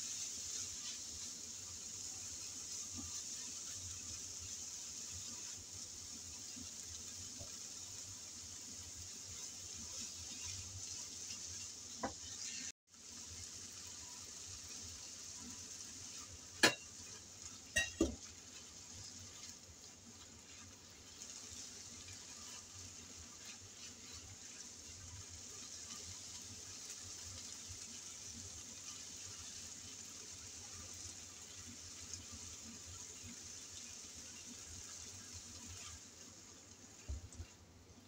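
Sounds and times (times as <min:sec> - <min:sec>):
food sizzling in a frying pan: 0:00.0 - 0:38.0.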